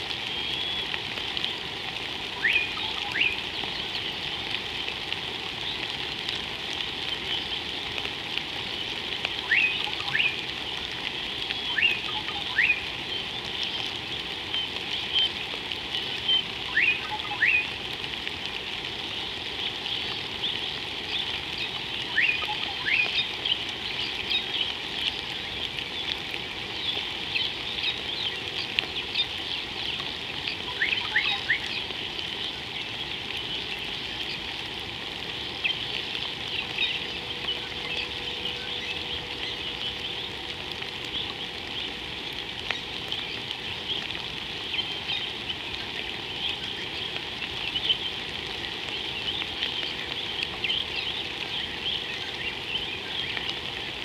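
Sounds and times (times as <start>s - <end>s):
steady hiss: 0.0s - 54.0s
bird whistling call: 2.4s - 3.4s, 9.4s - 10.4s, 11.6s - 12.8s, 16.3s - 17.8s, 22.1s - 23.2s, 30.7s - 31.8s.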